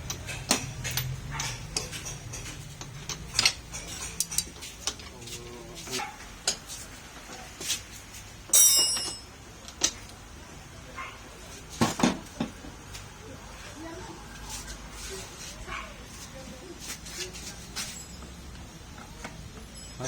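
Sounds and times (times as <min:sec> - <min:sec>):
metal tools clinking and tapping: 0:00.0 - 0:07.4, 0:08.5 - 0:10.2, 0:17.8 - 0:20.0.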